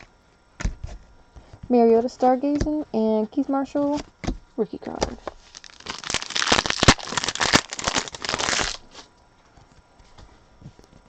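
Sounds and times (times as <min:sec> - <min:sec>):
wrapper tearing and crinkling: 0:05.2 - 0:09.1.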